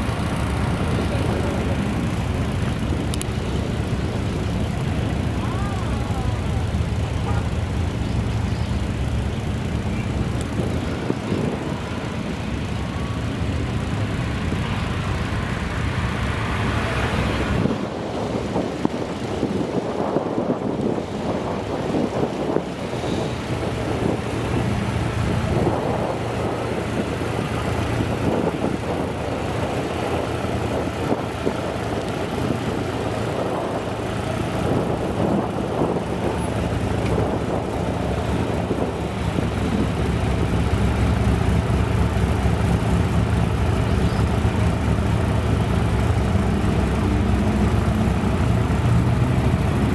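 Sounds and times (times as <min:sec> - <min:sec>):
car engine running at low revs: 0:00.0 - 0:49.9.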